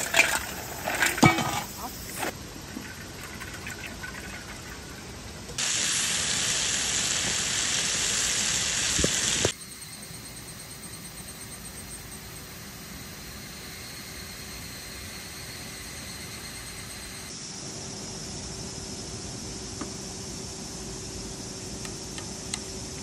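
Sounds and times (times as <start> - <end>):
ice cubes clinking into metal bowl: 0.0 - 1.7
food sizzling in frying pan: 5.6 - 9.5.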